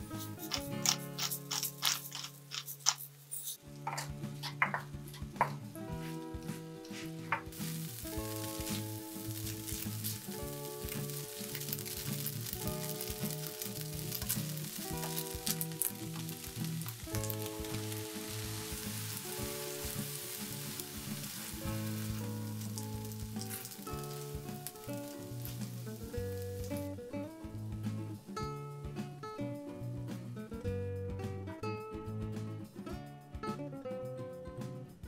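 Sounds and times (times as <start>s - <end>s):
soft background music: 0.0s - 35.0s
tongs clicking: 0.2s - 4.6s
food sizzling in a frying pan: 6.9s - 28.2s.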